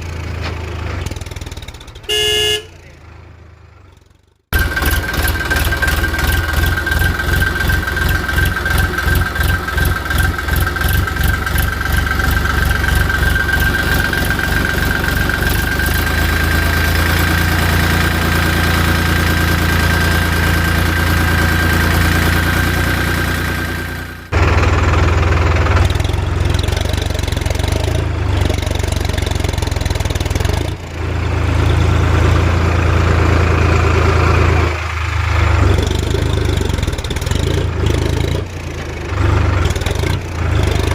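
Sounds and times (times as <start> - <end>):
tractor engine chugging: 0.0 - 2.8, 3.9 - 40.9.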